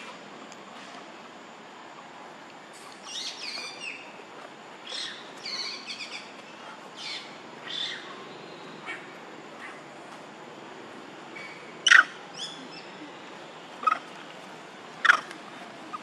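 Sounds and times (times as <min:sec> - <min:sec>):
outdoor background noise: 0:00.0 - 0:16.0
birds chirping: 0:02.8 - 0:09.9, 0:11.3 - 0:16.0.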